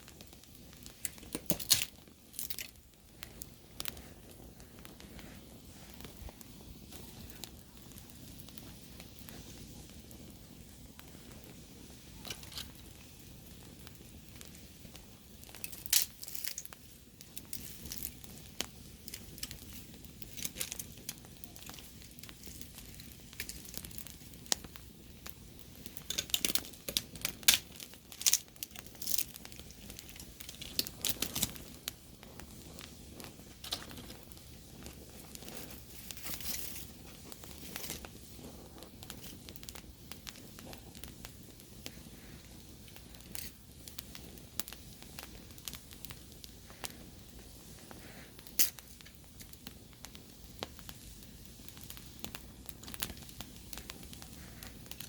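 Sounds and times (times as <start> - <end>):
campfire crackling and popping: 0.0 - 55.0
faint low hiss: 0.0 - 55.0.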